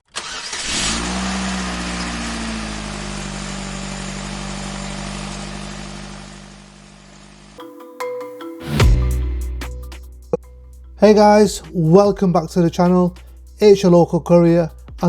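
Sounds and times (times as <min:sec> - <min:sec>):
car engine starting and idling: 0:00.0 - 0:07.6.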